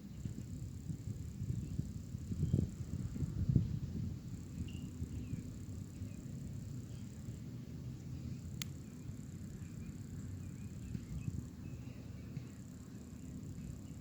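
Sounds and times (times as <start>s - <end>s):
faint high chirps: 4.4s - 14.0s.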